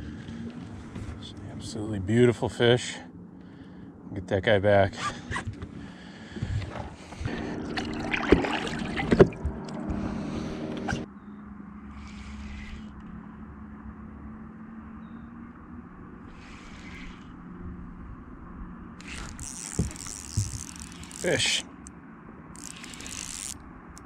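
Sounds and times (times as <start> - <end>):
steady low hum: 0.0 - 24.0
water splashing and sloshing: 6.4 - 11.0.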